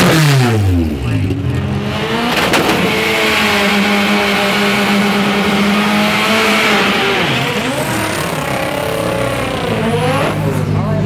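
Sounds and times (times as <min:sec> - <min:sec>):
drag car engine revving: 0:00.0 - 0:11.0.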